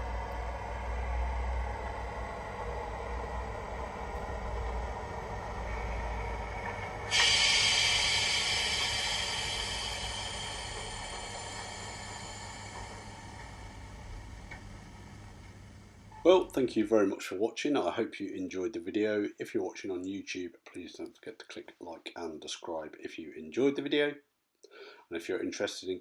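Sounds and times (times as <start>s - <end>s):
diesel locomotive engine through speaker: 0.0s - 17.0s
loud air hiss: 5.7s - 16.1s.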